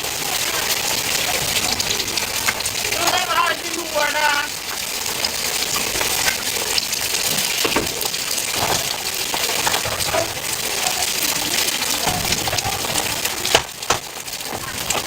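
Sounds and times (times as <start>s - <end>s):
food sizzling in a pan: 0.0s - 15.0s
metal utensils clinking: 5.7s - 15.0s.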